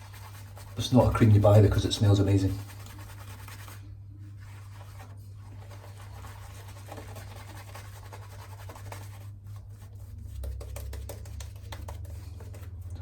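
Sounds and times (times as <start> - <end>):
razor scratching on face: 0.0 - 3.8.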